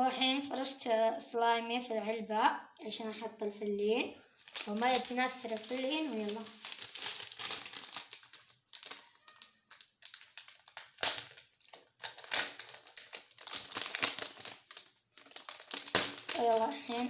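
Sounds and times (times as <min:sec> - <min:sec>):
plastic packaging crinkling: 0:04.3 - 0:17.0.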